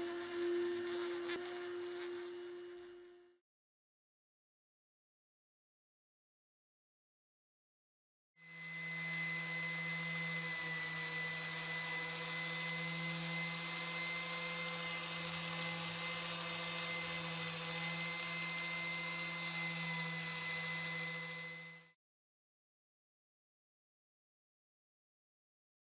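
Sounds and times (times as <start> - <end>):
electric power tool running: 0.0 - 3.3, 8.4 - 22.0.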